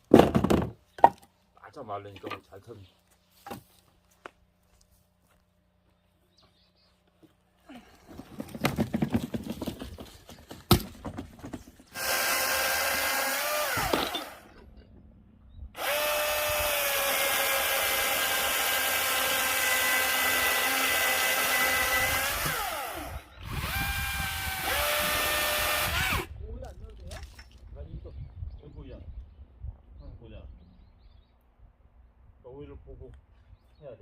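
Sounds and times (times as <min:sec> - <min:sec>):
wood clattering and handling: 0:00.0 - 0:01.4, 0:07.1 - 0:11.9
cordless chainsaw motor whining: 0:11.9 - 0:14.6, 0:15.8 - 0:26.3.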